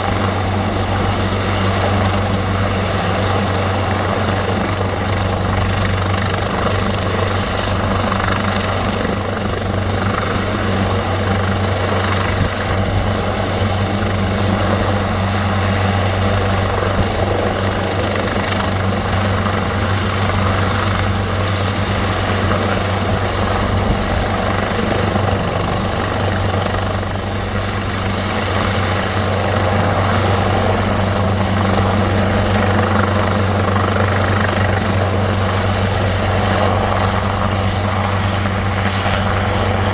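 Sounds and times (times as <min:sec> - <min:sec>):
helicopter rotor thrum: 0:00.0 - 0:39.9.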